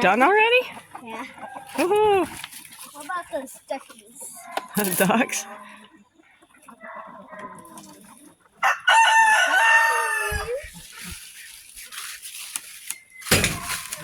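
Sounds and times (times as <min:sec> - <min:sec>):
chicken calls: 0:00.0 - 0:02.9, 0:03.8 - 0:11.9
rooster crowing: 0:08.6 - 0:10.7.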